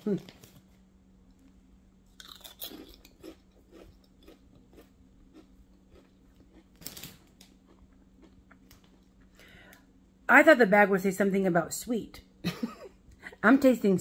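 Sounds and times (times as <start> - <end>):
woman crunching a potato chip: 2.1 - 9.2.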